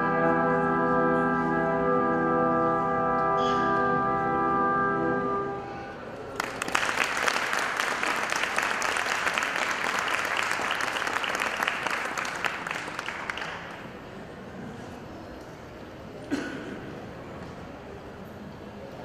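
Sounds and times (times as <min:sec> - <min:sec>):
held musical chord: 0:00.0 - 0:06.0
audience applauding: 0:06.3 - 0:14.0.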